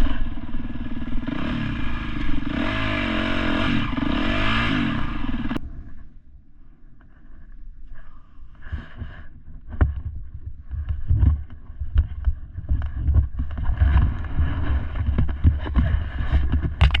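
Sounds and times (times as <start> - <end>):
knocks and clatter: 9.6 - 17.0
wind buffeting microphone: 9.8 - 17.0.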